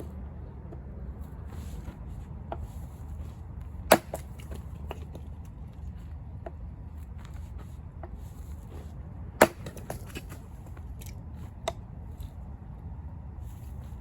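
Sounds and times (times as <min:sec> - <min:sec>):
axe splitting wood: 0:03.8 - 0:05.2, 0:09.3 - 0:11.1.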